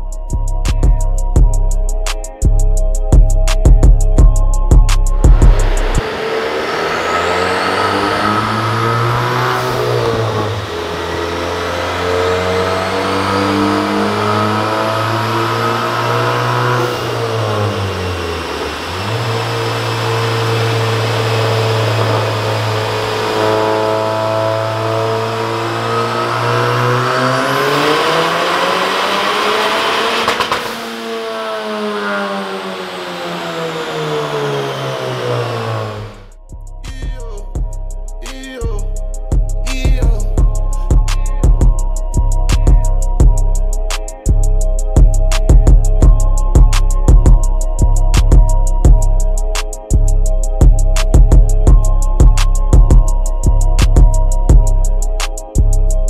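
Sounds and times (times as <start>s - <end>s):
turbocharged engine running hard: 2.4s - 56.0s
thin high whine: 5.2s - 10.5s.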